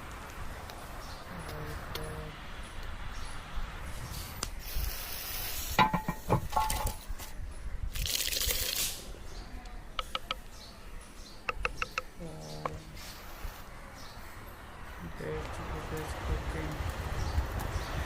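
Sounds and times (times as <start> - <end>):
sizzling hiss: 0.0 - 6.1, 12.9 - 13.7
sharp clicks: 9.6 - 10.6, 11.4 - 12.8.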